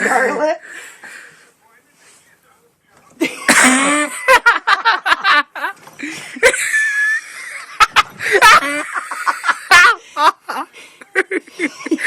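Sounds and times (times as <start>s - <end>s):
people laughing: 3.2s - 12.0s.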